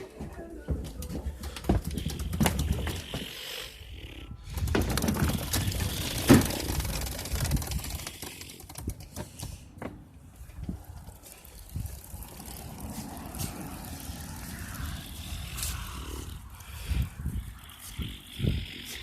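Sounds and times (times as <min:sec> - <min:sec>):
dirt bike rattling being moved: 0:00.0 - 0:03.6, 0:04.4 - 0:15.6.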